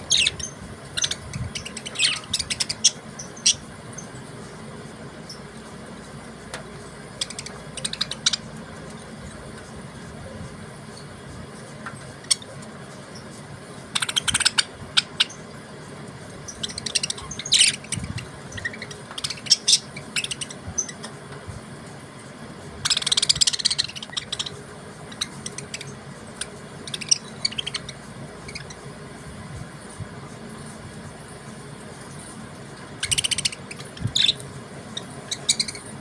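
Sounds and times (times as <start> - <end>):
budgerigars chirping: 0.0 - 4.1, 7.1 - 8.6, 13.9 - 15.5, 16.5 - 21.2, 22.8 - 29.0, 32.9 - 36.0.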